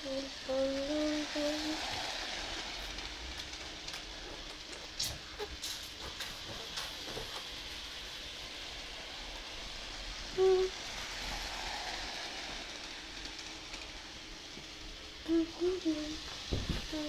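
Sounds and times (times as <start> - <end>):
model train whirring: 0.0 - 17.0
short voice sounds: 15.3 - 16.2.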